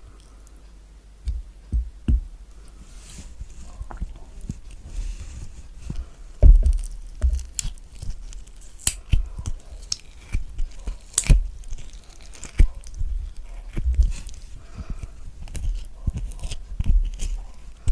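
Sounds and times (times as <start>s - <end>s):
soft thump: 1.3s - 2.4s
spoon scraping kiwi flesh: 2.7s - 17.9s.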